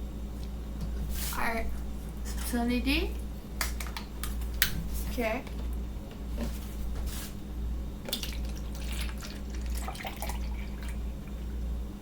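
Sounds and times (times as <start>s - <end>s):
drink pouring into a cup: 8.1s - 11.4s.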